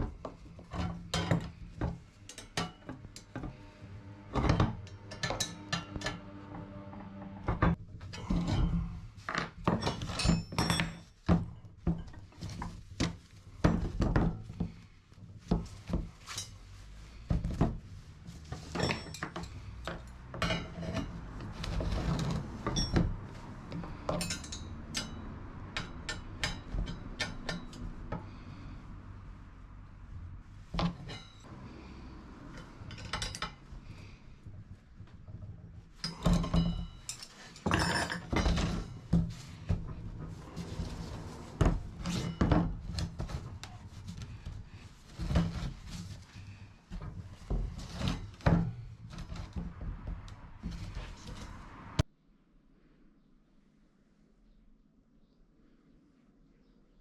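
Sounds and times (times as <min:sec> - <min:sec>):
metal parts clinking: 0:24.0 - 0:25.2, 0:36.0 - 0:38.8.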